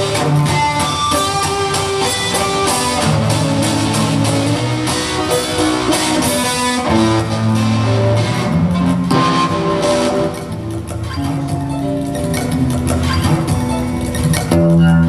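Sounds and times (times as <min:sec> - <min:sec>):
strummed guitar chords: 0:00.0 - 0:15.0
low bass notes: 0:03.0 - 0:15.0.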